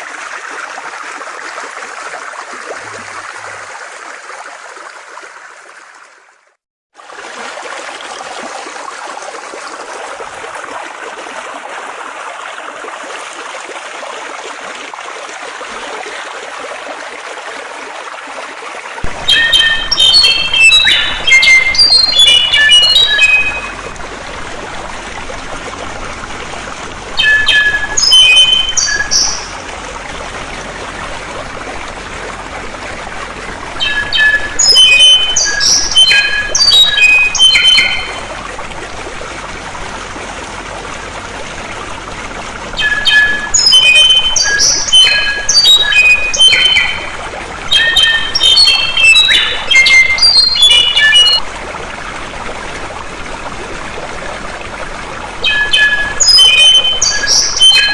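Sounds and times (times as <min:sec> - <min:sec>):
flowing water: 0:00.0 - 0:57.9
songbird singing: 0:19.1 - 0:23.8, 0:27.2 - 0:29.6, 0:33.8 - 0:38.3, 0:42.8 - 0:47.1, 0:47.7 - 0:51.4, 0:55.4 - 0:57.9.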